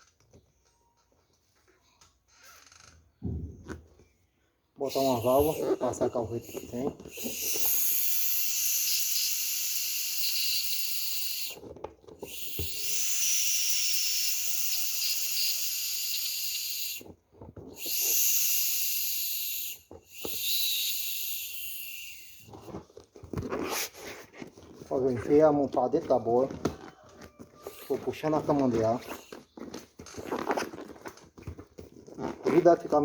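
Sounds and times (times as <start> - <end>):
air hissing out of a ball valve: 4.8 - 22.8, 27.6 - 29.5.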